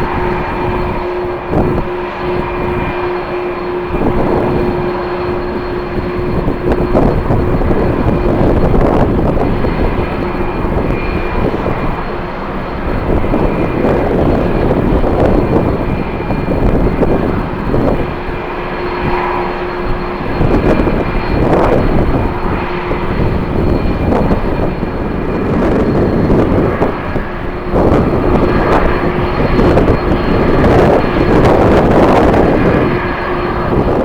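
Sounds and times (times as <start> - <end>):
jet engine whine: 0.0 - 34.0
wind buffeting microphone: 0.0 - 34.0.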